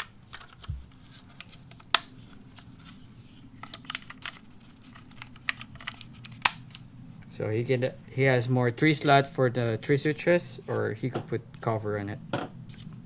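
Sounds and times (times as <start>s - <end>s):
loud plastic snaps: 5.0s - 6.8s.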